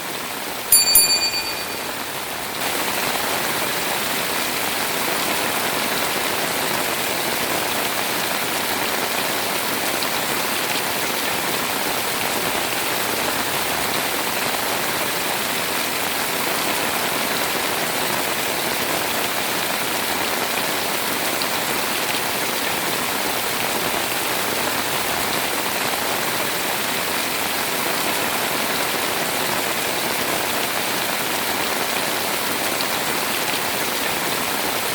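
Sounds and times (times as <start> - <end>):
short ringing tone: 0.7 - 2.1.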